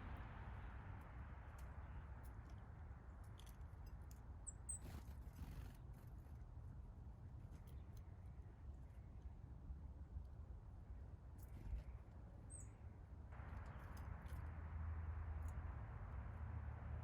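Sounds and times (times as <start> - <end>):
small bird chirps: 12.5 - 12.9.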